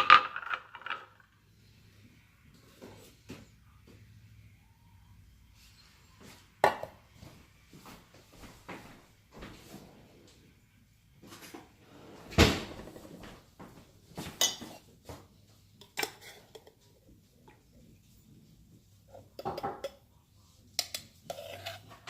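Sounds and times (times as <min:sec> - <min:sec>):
cups and dishes clinking: 0:14.2 - 0:15.2, 0:15.8 - 0:16.8, 0:19.1 - 0:20.0.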